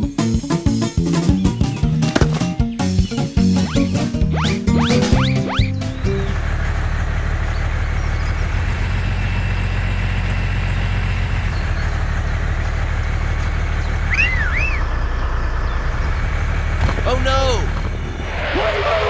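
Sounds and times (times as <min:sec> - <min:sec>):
vehicle engine idling: 0:05.2 - 0:19.0.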